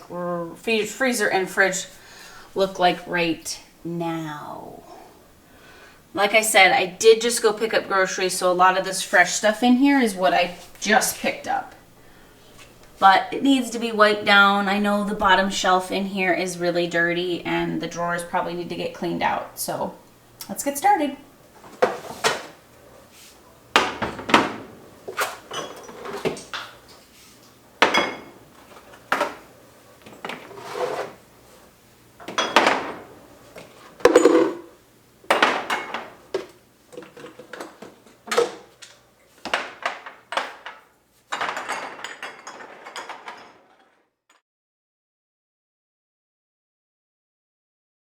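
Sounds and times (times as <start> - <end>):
bottles and jars clinking: 23.8 - 26.8, 27.8 - 30.7, 32.2 - 44.0.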